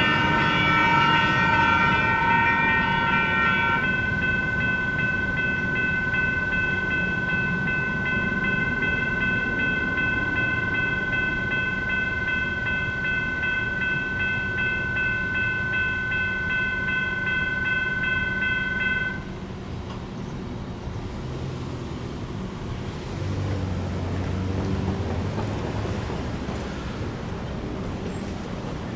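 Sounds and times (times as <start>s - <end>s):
road noise: 0.0s - 28.9s
rumbling train: 0.0s - 28.9s
electronic crossing bell ringing: 3.2s - 19.3s
vehicle engine humming past: 21.0s - 28.6s.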